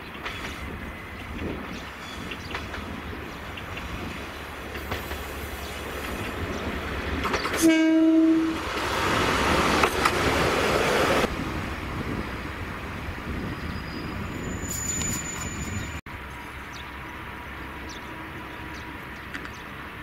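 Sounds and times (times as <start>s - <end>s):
railcar passing: 0.0s - 20.0s
train horn blast: 7.6s - 8.6s.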